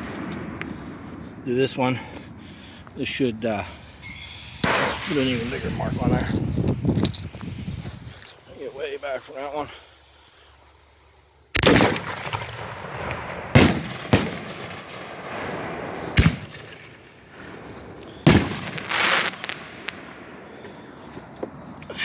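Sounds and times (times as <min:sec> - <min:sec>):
rough hiss: 0:04.0 - 0:05.9
firecracker bangs: 0:04.0 - 0:06.2, 0:11.6 - 0:17.0, 0:18.1 - 0:20.2.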